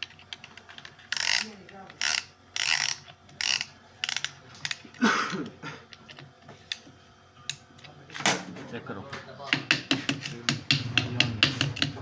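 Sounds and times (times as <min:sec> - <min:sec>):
ratchet clicking: 0:01.1 - 0:04.8.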